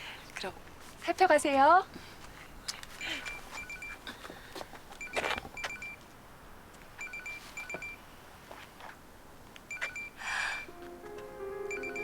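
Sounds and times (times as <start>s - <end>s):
phone ringtone beeps: 3.6s - 4.0s, 5.0s - 6.0s, 7.0s - 8.0s, 9.7s - 10.1s, 11.7s - 12.0s.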